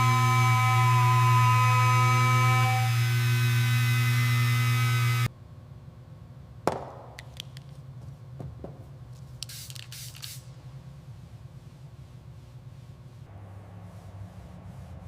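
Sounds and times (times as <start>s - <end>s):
machine hum: 0.0s - 7.2s
hissing spray bursts: 9.4s - 10.5s.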